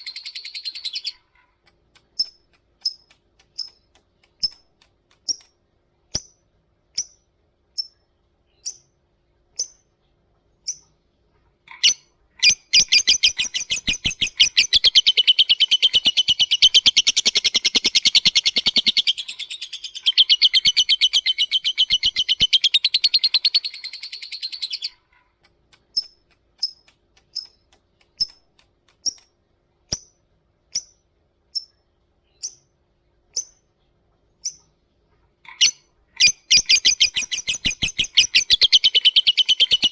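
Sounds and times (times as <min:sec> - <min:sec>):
lovebird chirping: 0:00.0 - 0:01.3, 0:07.8 - 0:09.8, 0:10.6 - 0:11.0, 0:11.7 - 0:25.0, 0:30.7 - 0:32.7, 0:35.5 - 0:39.9.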